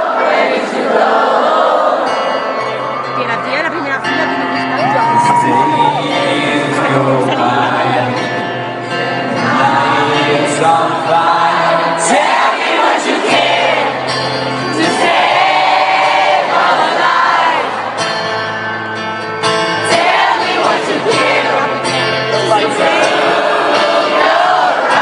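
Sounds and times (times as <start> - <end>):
crowd singing along: 0.0 - 25.0
live rock concert music: 0.8 - 25.0.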